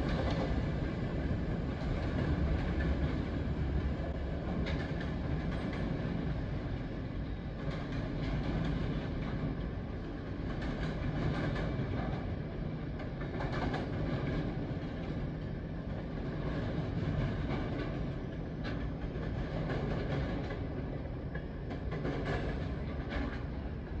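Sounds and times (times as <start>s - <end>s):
freight train wheels rumbling: 0.0s - 24.0s
train wheel clicks: 4.5s - 6.4s, 10.4s - 12.3s, 13.0s - 15.2s, 16.2s - 23.6s.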